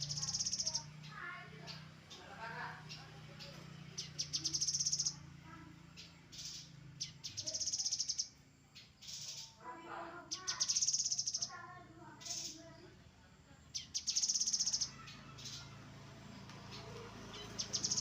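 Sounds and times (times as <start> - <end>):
bird high rapid trills: 0.0 - 8.4, 10.2 - 11.6, 13.8 - 16.0, 16.7 - 18.0
bird chirping: 0.0 - 12.9, 13.6 - 15.8, 16.4 - 18.0.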